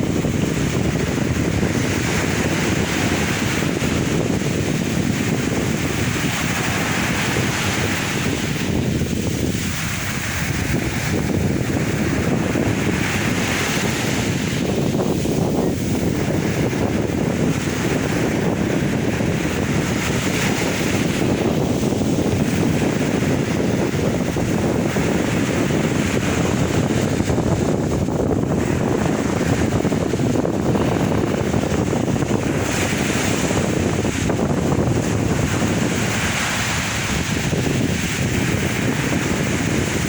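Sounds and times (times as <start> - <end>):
sea waves breaking ashore: 0.0 - 40.0.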